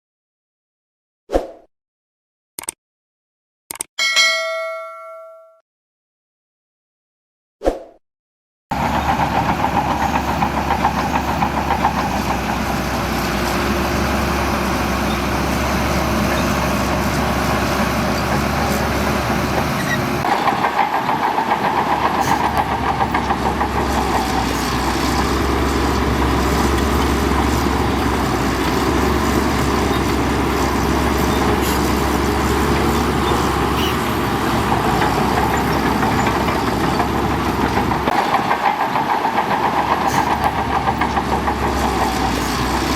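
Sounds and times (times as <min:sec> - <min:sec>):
heavy diesel engine running: 0:08.7 - 0:42.9.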